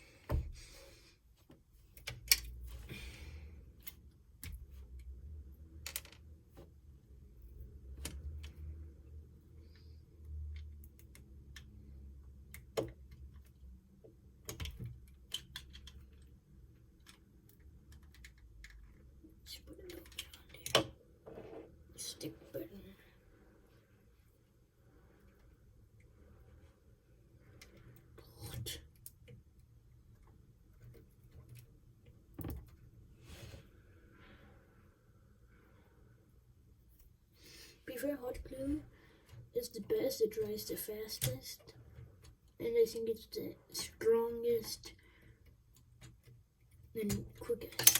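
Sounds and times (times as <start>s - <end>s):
small parts and tools clicking: 1.9s - 2.8s, 3.8s - 6.4s, 9.7s - 21.0s, 45.4s - 47.9s.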